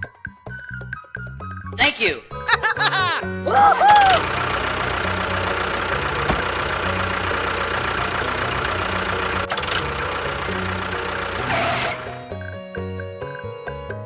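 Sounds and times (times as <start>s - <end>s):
background music: 0.0s - 14.0s
small motor running: 3.8s - 12.8s.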